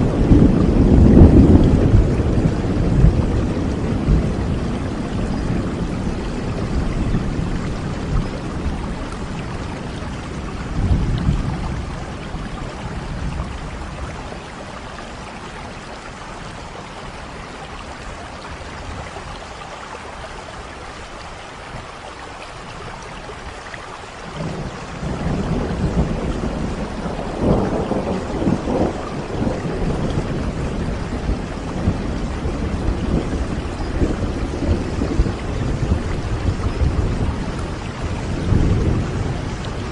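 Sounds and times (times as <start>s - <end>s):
rolling thunder: 0.0s - 14.7s, 24.2s - 39.9s
steady rain: 0.0s - 39.9s.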